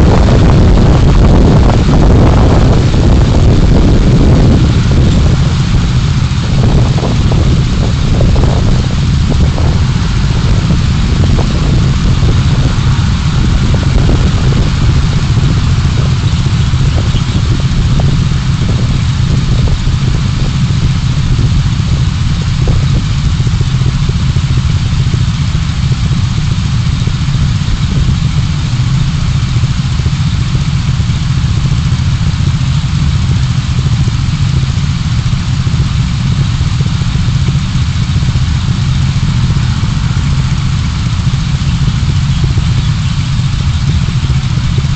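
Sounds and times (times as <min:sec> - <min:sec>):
car engine and road rumble: 0:00.0 - 0:44.9.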